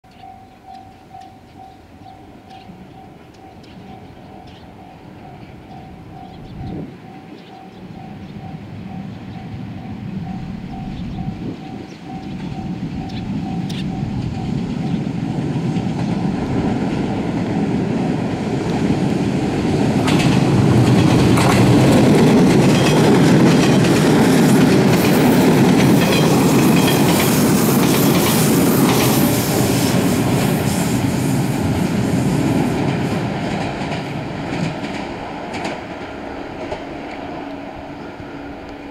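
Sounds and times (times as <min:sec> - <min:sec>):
train rumble: 0:00.1 - 0:38.9
wheels clacking over rail joints: 0:11.7 - 0:37.6.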